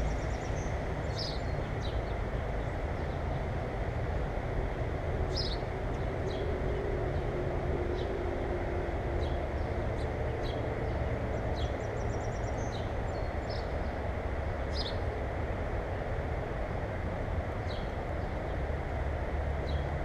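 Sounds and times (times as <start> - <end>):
small birds chirping: 0.0 - 3.2.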